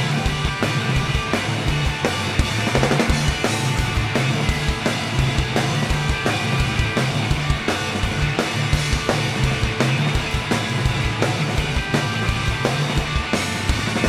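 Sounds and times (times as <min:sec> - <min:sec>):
bass notes: 0:00.0 - 0:14.0
drum kit beat: 0:00.0 - 0:14.0
guitar: 0:00.0 - 0:14.0.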